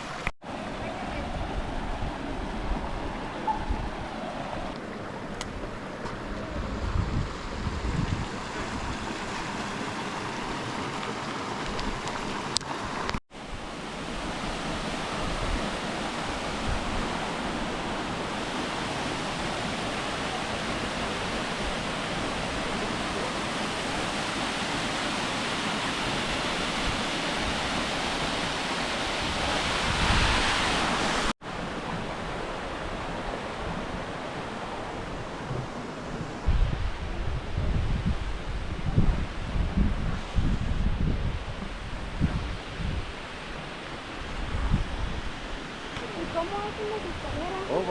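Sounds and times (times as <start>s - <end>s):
waterfall rushing water: 7.4s - 37.1s.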